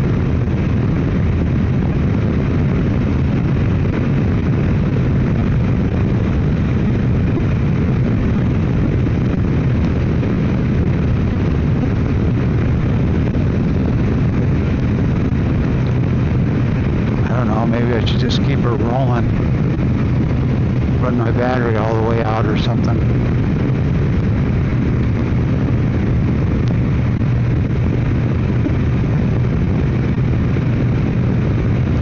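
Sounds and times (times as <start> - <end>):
motorcycle engine: 0.0 - 32.0
wind noise: 0.0 - 32.0.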